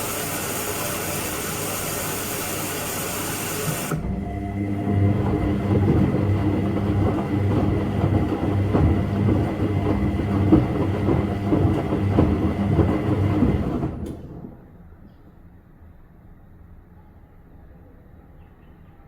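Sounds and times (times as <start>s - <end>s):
washing machine running: 0.0s - 14.8s.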